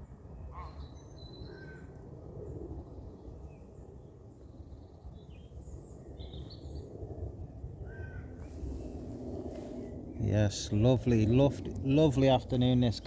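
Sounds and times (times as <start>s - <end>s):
steady low rumble: 8.4s - 13.0s.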